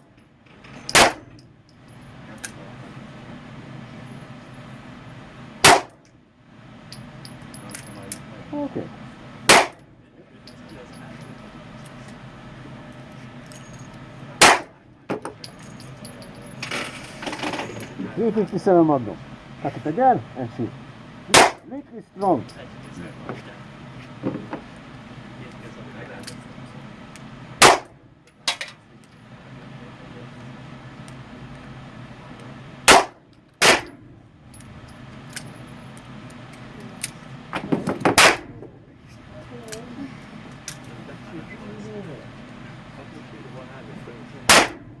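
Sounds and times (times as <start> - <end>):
handgun shot: 0.9 - 1.3, 5.6 - 6.0, 9.5 - 9.8, 14.4 - 14.7, 21.3 - 21.7, 27.6 - 27.9, 32.9 - 33.9, 38.1 - 38.5, 44.5 - 44.8.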